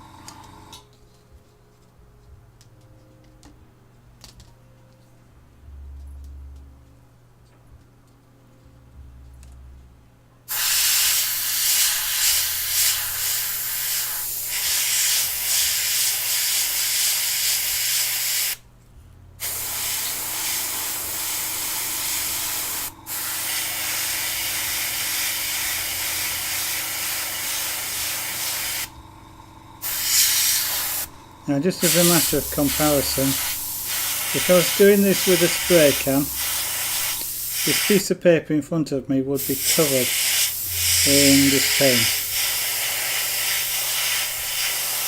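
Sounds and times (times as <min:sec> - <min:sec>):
airbrush spraying hiss: 0:10.5 - 0:18.6, 0:19.4 - 0:28.9, 0:29.8 - 0:38.1, 0:39.4 - 0:45.0.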